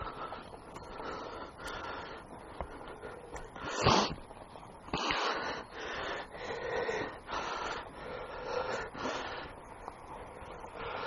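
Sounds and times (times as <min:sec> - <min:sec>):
person breathing hard: 0:00.0 - 0:04.3, 0:04.9 - 0:11.0.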